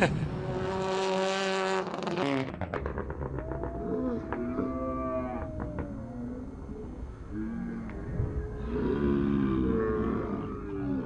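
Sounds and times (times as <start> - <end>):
rally car engine revving: 0.0 - 4.8.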